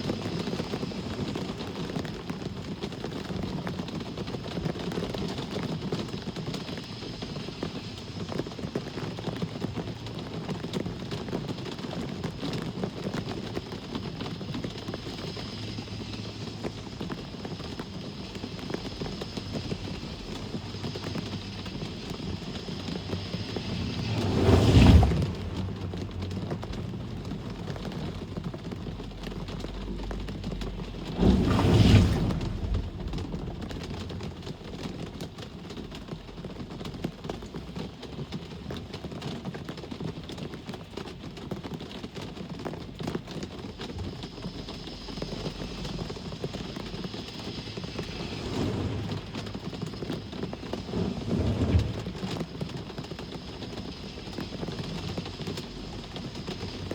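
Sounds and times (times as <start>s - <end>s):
steady rain: 0.0s - 56.9s
vehicles passing on wet road: 9.1s - 39.1s, 42.0s - 56.9s.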